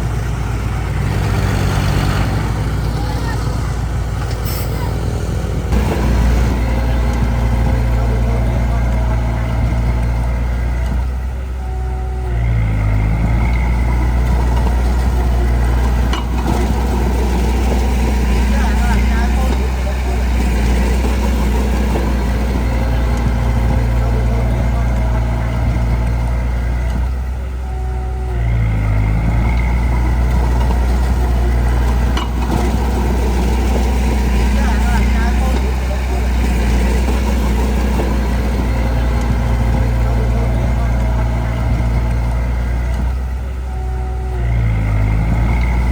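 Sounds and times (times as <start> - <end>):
heavy diesel engine running: 0.0 - 45.9.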